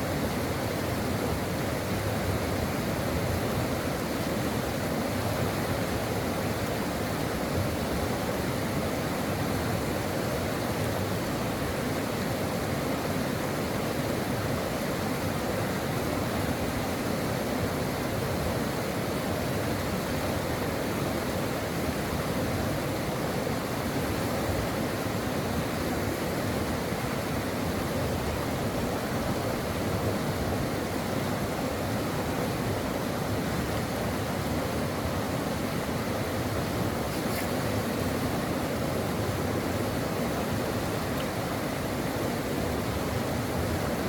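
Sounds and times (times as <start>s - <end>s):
brook water flowing: 0.0s - 44.0s.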